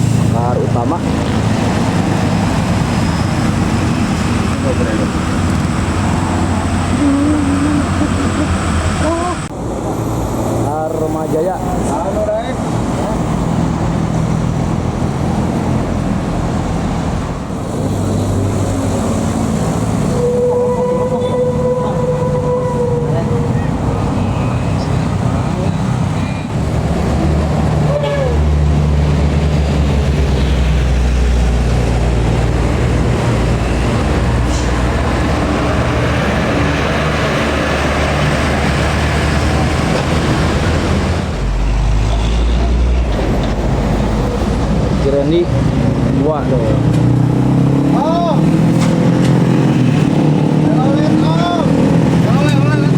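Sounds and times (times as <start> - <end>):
lower engine note: 0.0 - 12.1
bus diesel engine under load: 0.0 - 52.9.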